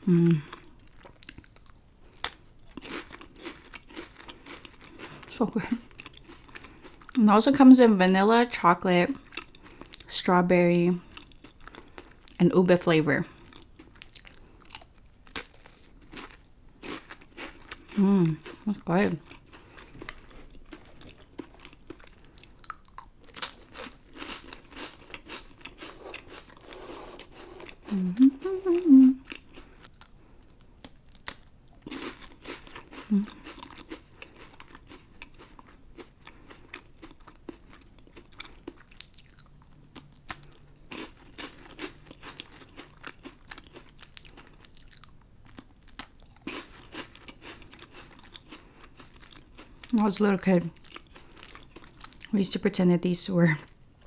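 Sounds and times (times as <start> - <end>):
wafer cookie crunching: 0.1 - 52.4
person's voice: 5.3 - 5.8, 18.0 - 19.2, 27.9 - 29.2.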